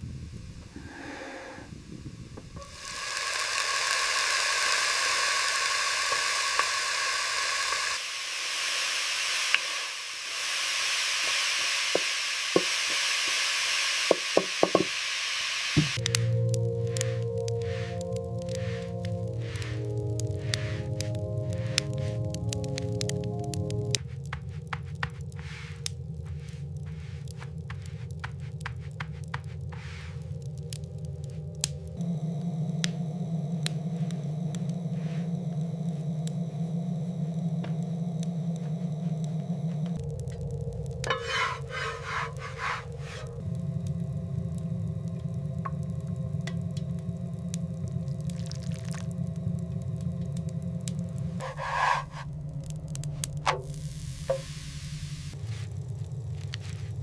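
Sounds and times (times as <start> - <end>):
low wind rumble: 0.0 - 4.1, 15.9 - 57.0
sharp pops and crackles: 2.4 - 13.5, 15.8 - 32.1, 37.3 - 57.0
food sizzling in a pan: 2.6 - 22.2, 41.1 - 43.3, 47.9 - 49.2, 51.3 - 52.4, 53.1 - 57.0
soft crunching: 24.0 - 31.6, 55.3 - 57.0.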